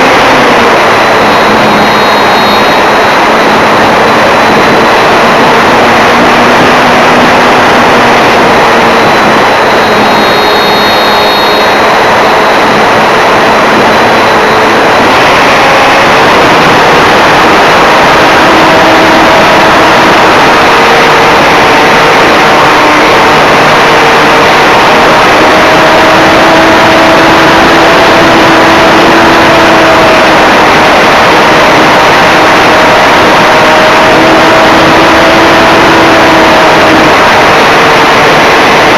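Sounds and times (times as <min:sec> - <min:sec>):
electric motor and propeller whine: 0:00.0 - 0:38.9
wind rush over microphone: 0:00.0 - 0:38.9.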